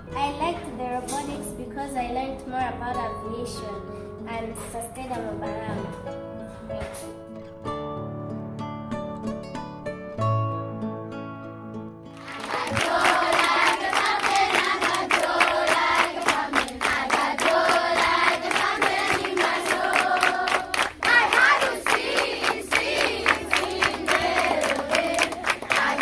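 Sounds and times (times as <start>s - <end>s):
quiet acoustic guitar music: 0.0s - 12.4s
crowd noise: 12.2s - 26.0s
group singing together: 12.2s - 26.0s
rhythmic hand clapping: 12.2s - 26.0s.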